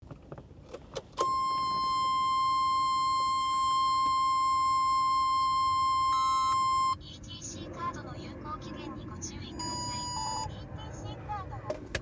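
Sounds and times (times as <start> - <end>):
high-pitched electronic beep: 1.3 - 7.0, 9.6 - 10.5.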